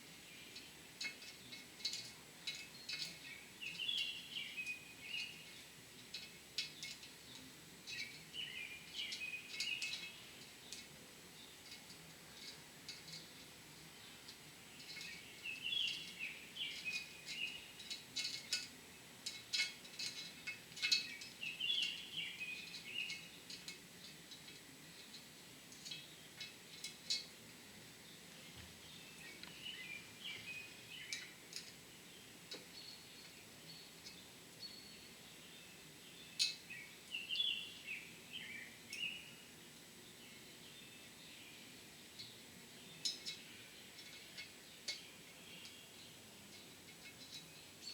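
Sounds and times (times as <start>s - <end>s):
small bird chirping: 1.4s - 5.6s, 6.7s - 18.6s, 19.5s - 23.5s, 28.8s - 39.4s, 40.1s - 47.9s.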